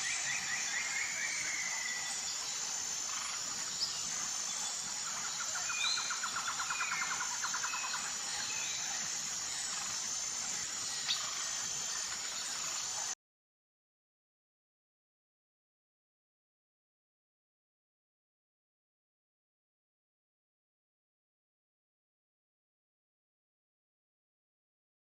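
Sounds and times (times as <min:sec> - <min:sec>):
high-pitched insect drone: 0:00.0 - 0:13.2.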